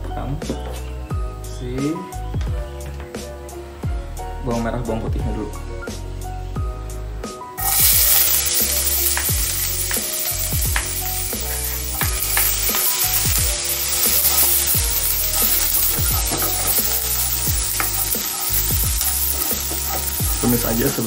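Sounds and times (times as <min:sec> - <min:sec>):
food sizzling in a wok: 0:07.6 - 0:21.0
spatula clicking against pan: 0:09.0 - 0:20.2.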